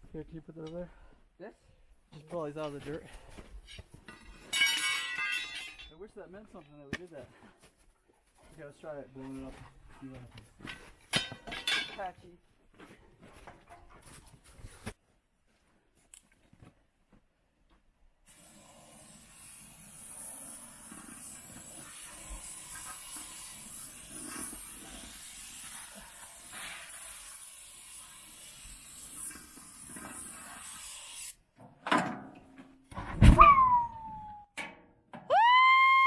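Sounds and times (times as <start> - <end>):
heavy thump with falling tone: 33.0 - 34.4.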